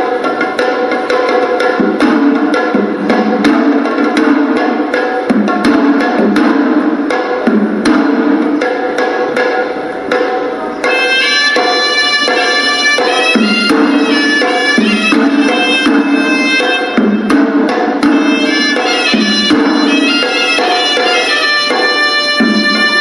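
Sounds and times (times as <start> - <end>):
drum strokes: 0.0 - 23.0
shrill double-reed pipe melody: 10.9 - 17.3, 18.1 - 23.0.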